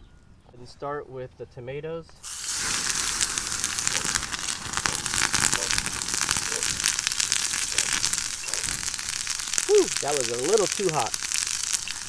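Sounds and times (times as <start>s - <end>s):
tomatoes sizzling in hot oil: 2.2s - 12.0s.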